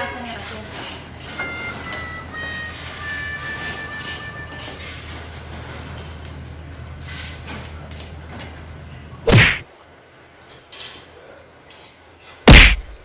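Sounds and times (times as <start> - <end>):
loud thump: 9.3 - 9.6, 12.5 - 13.0.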